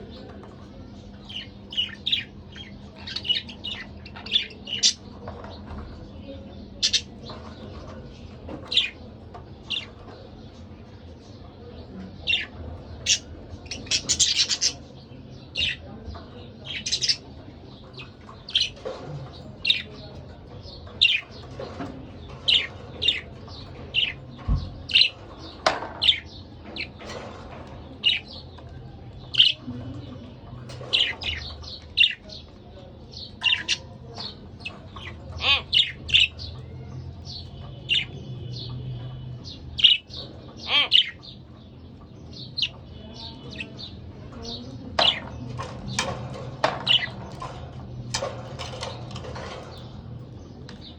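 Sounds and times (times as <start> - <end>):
budgerigars chirping: 6.8 - 7.1, 13.0 - 14.8, 16.7 - 17.2.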